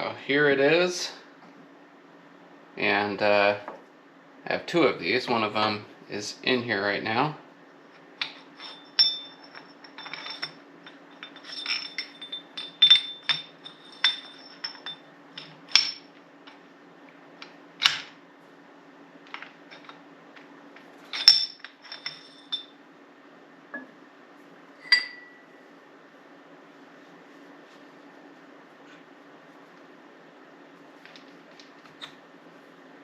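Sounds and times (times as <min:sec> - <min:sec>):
low machine hum: 0:00.0 - 0:33.0
metal parts clinking: 0:08.2 - 0:16.1, 0:19.3 - 0:20.0, 0:21.0 - 0:22.8.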